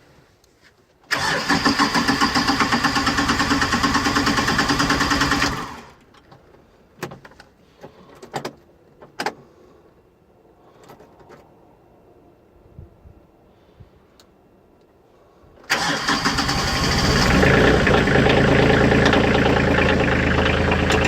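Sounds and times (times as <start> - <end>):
diesel engine cranking: 1.1 - 6.0, 15.7 - 21.0.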